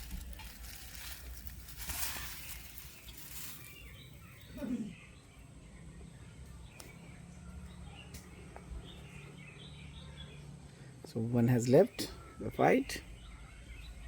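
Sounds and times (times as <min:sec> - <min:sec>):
kittens scuffling: 0:00.0 - 0:04.2
birds chirping faintly: 0:00.0 - 0:14.0.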